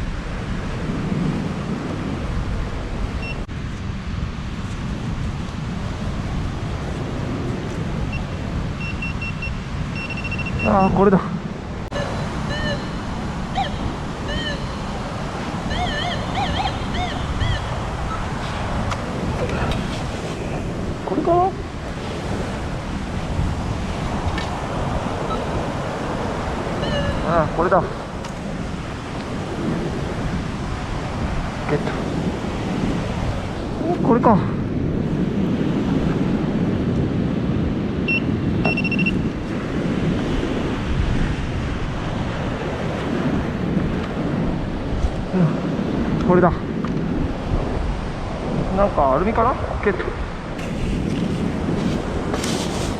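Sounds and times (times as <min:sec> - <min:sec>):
surf: 0:00.0 - 0:52.9
wind: 0:00.0 - 0:52.9
metal detector warbling tones: 0:08.1 - 0:10.8, 0:11.9 - 0:15.0, 0:15.7 - 0:18.3, 0:26.8 - 0:27.3, 0:38.1 - 0:39.3.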